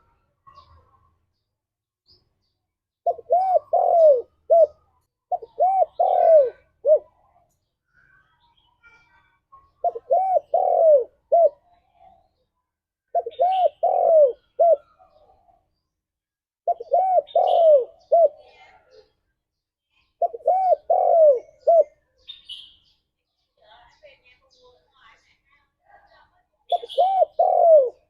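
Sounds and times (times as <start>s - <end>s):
dove cooing: 3.0s - 7.3s, 9.7s - 11.8s, 13.1s - 15.6s, 16.6s - 18.5s, 20.2s - 22.0s, 26.7s - 28.0s.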